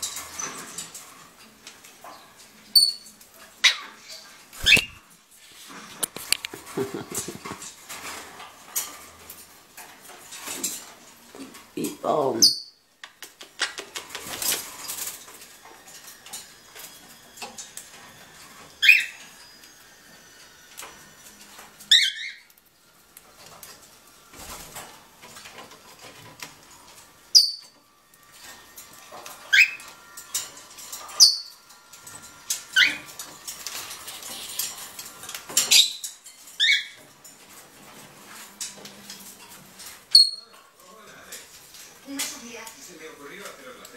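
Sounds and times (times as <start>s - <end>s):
soft bird chirps: 3.6s - 5.0s
loud sharp bird calls: 4.6s - 5.0s
light ticking and rustling: 22.5s - 43.9s.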